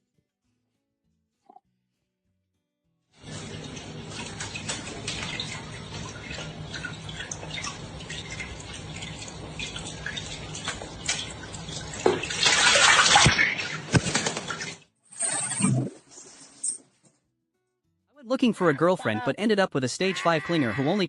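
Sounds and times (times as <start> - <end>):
water splashing and sloshing: 3.2 - 16.5.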